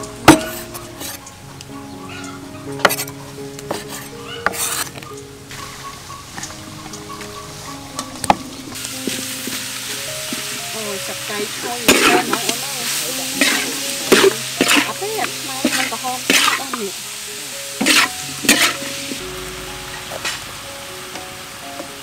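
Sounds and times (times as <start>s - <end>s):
metal spatula scraping a pan: 2.8s - 5.0s, 11.4s - 17.0s, 17.7s - 19.2s
fish sizzling in a wok: 8.2s - 22.0s.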